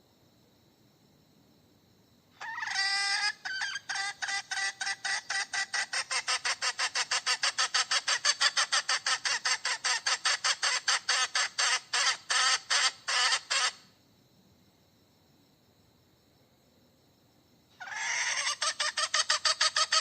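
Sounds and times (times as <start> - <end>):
hen cackling: 2.4 - 13.9, 17.8 - 20.0.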